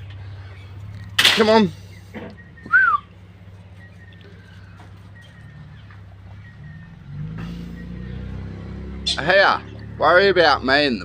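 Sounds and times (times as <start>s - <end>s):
low hum: 0.0s - 8.5s
whistled call: 2.0s - 3.2s.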